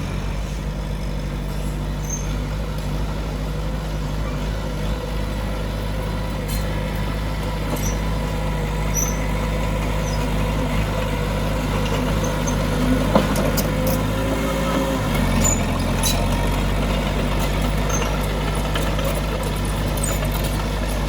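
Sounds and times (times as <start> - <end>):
diesel earthmoving machinery running: 0.0 - 21.0.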